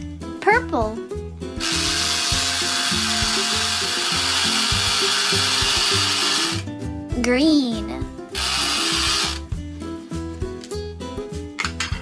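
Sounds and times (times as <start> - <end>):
children's background music: 0.0 - 12.0
toy blender motor whirring: 1.6 - 6.6, 8.4 - 9.4.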